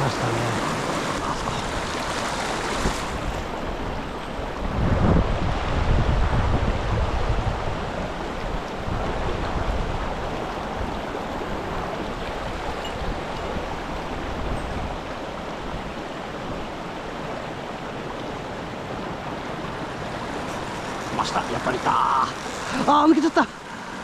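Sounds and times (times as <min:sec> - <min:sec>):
wind buffeting microphone: 0:00.0 - 0:16.9
river water rushing: 0:00.0 - 0:24.0.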